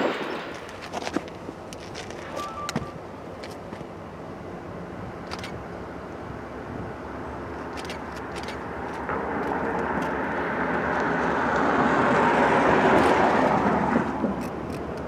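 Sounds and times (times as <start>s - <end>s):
vehicle passing: 9.0s - 14.3s.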